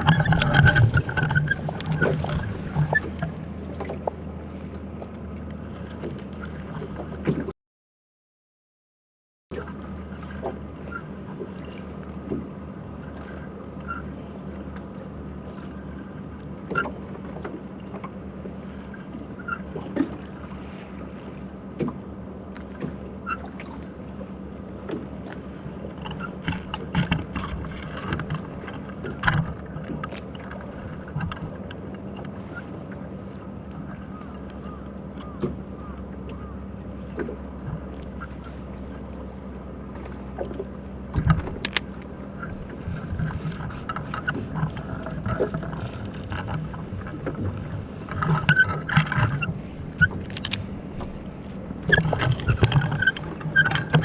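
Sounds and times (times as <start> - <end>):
muffled underwater hum: 0.0 - 7.5, 9.5 - 54.0
sharp underwater clicks: 40.4 - 42.5, 43.2 - 54.0.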